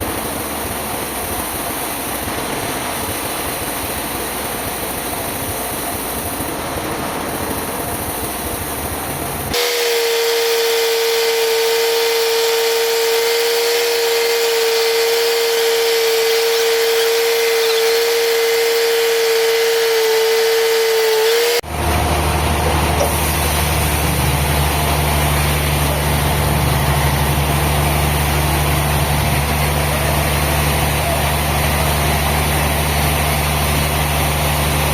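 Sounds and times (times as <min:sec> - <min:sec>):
high machine whine: 0:00.0 - 0:34.9
mechanical rush: 0:00.0 - 0:34.9
low engine hum: 0:11.1 - 0:34.9.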